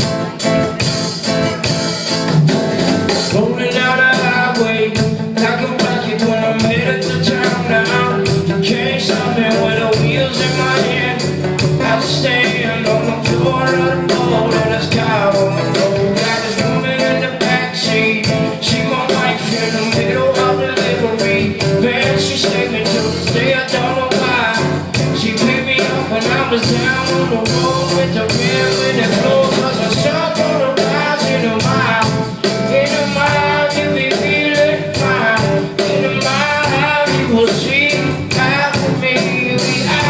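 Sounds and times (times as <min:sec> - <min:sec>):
live band playing: 0:00.0 - 0:40.0.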